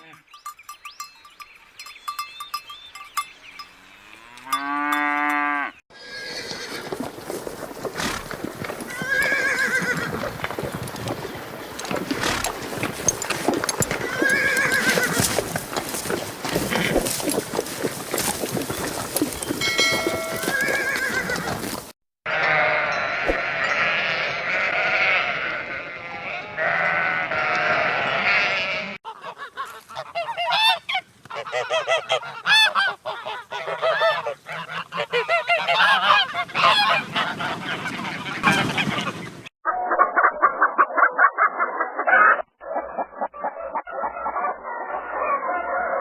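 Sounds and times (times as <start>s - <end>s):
domestic fowl calls: 27.4s - 46.0s.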